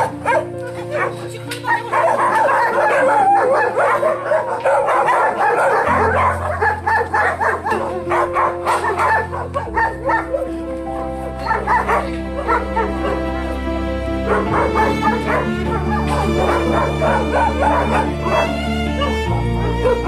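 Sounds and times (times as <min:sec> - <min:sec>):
dogs barking and yipping: 0:00.0 - 0:20.0
music with low held chords: 0:00.0 - 0:20.0.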